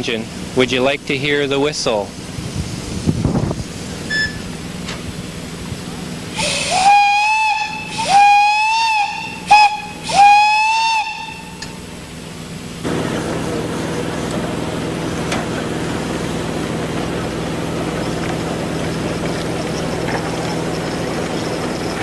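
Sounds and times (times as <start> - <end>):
hiss of steam: 4.9 - 14.2
steam whistle blasts: 6.3 - 11.9.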